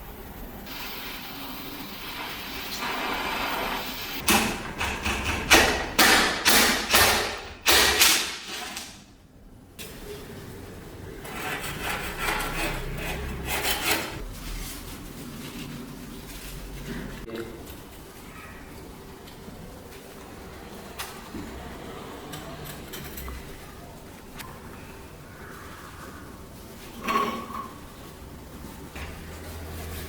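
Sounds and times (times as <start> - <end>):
hand-crank grinder scraping: 11.2 - 14.2.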